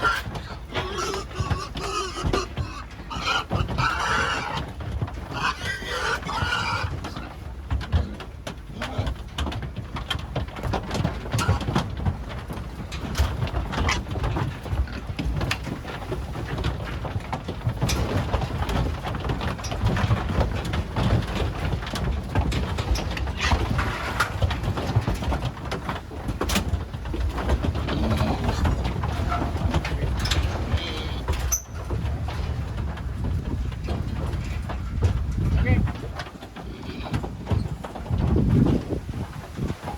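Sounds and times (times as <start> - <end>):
pigs grunting: 0.0 - 9.4, 27.3 - 32.5, 35.8 - 38.0
clatter of hooves and gates: 0.0 - 39.9.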